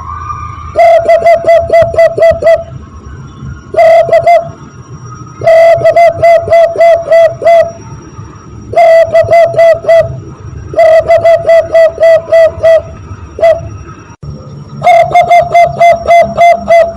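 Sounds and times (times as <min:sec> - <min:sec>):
dove cooing imitated by hands: 0:00.8 - 0:02.6, 0:03.8 - 0:04.5, 0:05.4 - 0:07.8, 0:08.7 - 0:13.7, 0:14.8 - 0:16.9.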